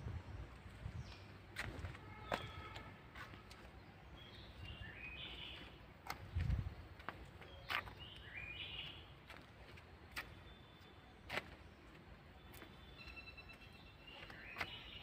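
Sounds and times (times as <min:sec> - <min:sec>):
faint outdoor background noise: 0:00.0 - 0:15.0
songbird chirping: 0:00.4 - 0:15.0.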